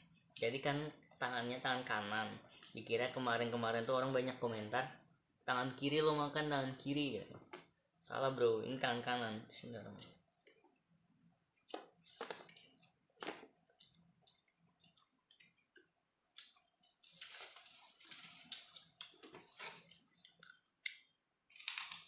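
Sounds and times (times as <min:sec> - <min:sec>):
person chewing: 0:10.1 - 0:22.0
wet mouth clicks and smacks: 0:20.2 - 0:21.1.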